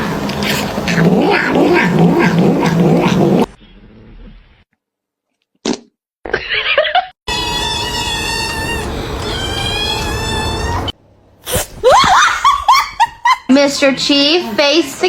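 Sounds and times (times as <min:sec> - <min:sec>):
cat calling: 0:07.3 - 0:11.0
cat yowling: 0:07.3 - 0:11.0.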